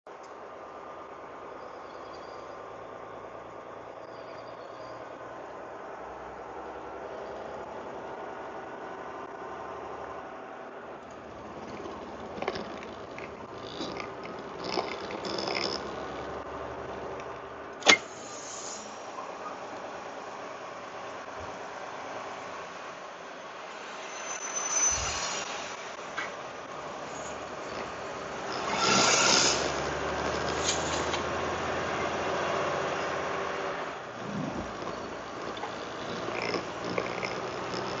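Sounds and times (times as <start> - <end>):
vehicle engine idling: 0.1 - 18.1, 25.8 - 38.0
highway traffic hum and tyres: 0.1 - 38.0
small clicks and rattles: 11.0 - 17.5, 34.2 - 38.0.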